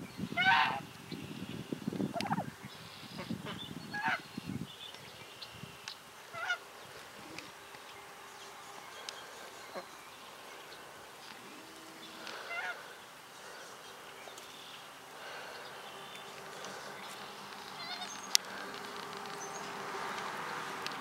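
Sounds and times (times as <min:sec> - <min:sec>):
outdoor ambience: 0:00.0 - 0:21.0
fowl calling: 0:00.4 - 0:00.8, 0:02.1 - 0:04.3, 0:06.2 - 0:07.6, 0:11.2 - 0:13.7, 0:15.2 - 0:19.6.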